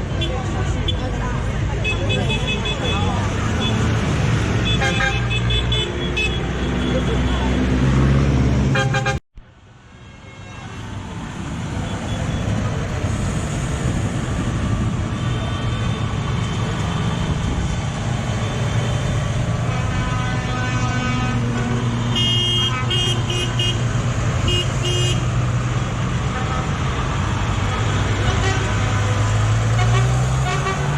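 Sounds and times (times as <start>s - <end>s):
horn toots: 1.8s - 7.8s, 8.7s - 9.2s, 19.6s - 23.8s, 24.4s - 25.3s, 29.7s - 30.9s
tractor engines running: 11.0s - 30.9s.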